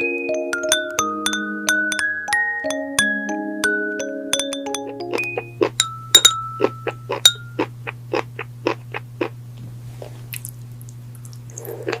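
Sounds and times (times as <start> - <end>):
glass clinking: 0.6 - 7.7
low hum: 4.3 - 9.8.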